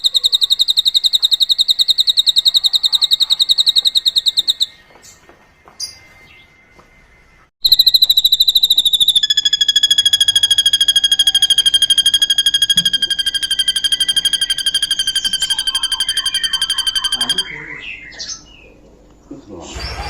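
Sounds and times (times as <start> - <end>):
bird fast pulsed trill: 0.0 - 4.8, 7.6 - 18.7.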